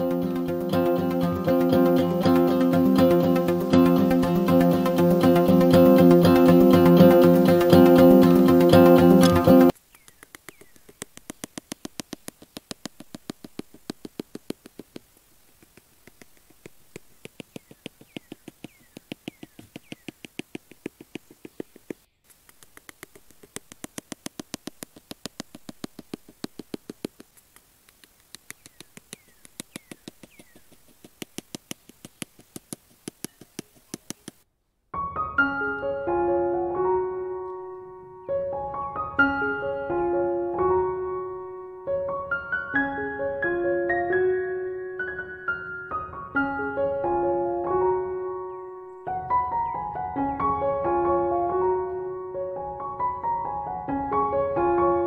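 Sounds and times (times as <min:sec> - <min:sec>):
piano music: 0:00.0 - 0:09.8, 0:35.0 - 0:55.0
rapid even clicking: 0:00.0 - 0:34.4.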